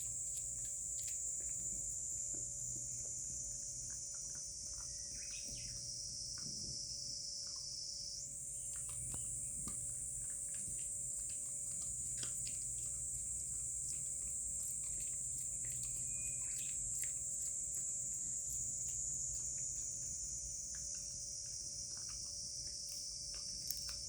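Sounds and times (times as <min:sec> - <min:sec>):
high-pitched insect drone: 0:14.9 - 0:21.9.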